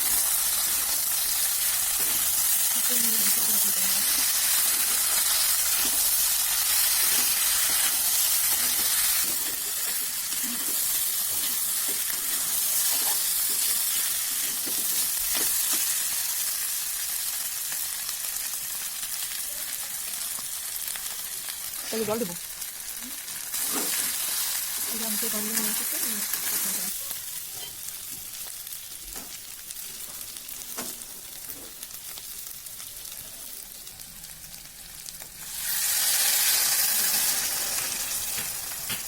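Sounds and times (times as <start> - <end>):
curry sizzling in oil: 0.0 - 39.0.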